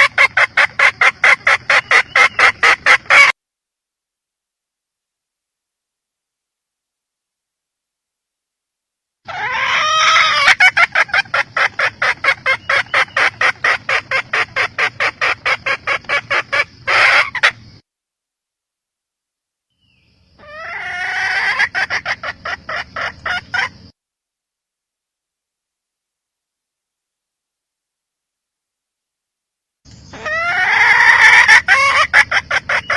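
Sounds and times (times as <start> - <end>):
hen calling and clucking: 0.0 - 3.4, 9.2 - 17.8, 20.4 - 23.9, 29.9 - 32.9.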